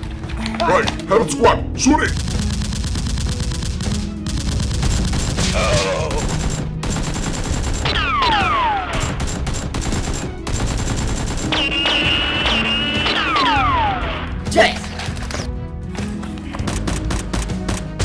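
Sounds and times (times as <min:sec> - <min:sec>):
rapid automatic gunfire: 0:02.1 - 0:13.4.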